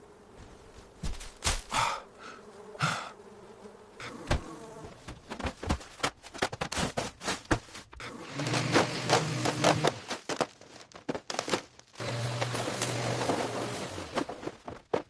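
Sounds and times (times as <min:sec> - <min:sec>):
insects buzzing: 0:00.0 - 0:05.6
trash rustling and knocking: 0:04.3 - 0:15.0.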